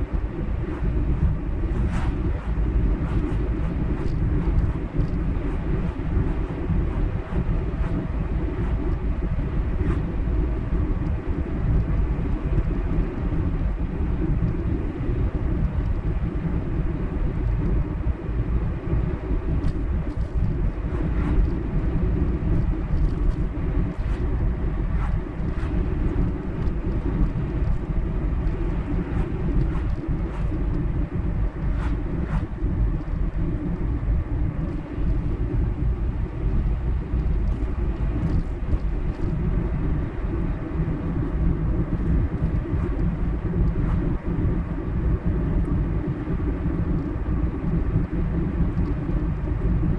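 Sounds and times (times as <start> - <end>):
car road and engine rumble: 0.0 - 45.0.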